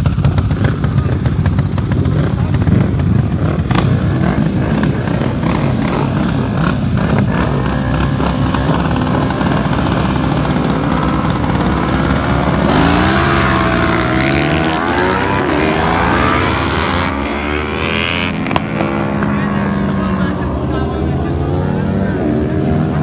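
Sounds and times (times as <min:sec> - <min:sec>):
motorcycle engines running: 0:00.0 - 0:23.0
motorcycle revving through gears: 0:00.0 - 0:23.0.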